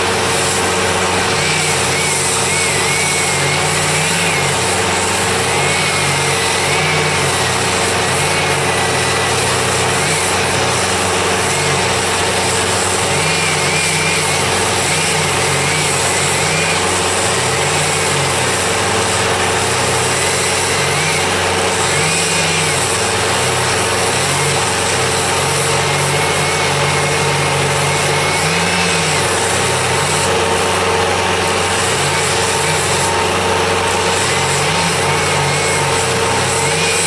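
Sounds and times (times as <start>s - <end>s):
engine running under load: 0.0s - 37.0s.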